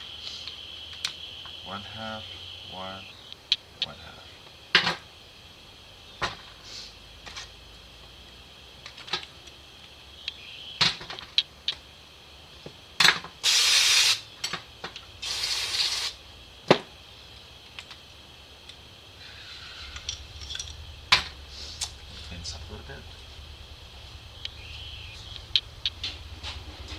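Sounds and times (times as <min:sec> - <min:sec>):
hissing spray bursts: 0:13.4 - 0:14.3, 0:15.2 - 0:16.2
tools and metal parts clicking: 0:19.9 - 0:20.8.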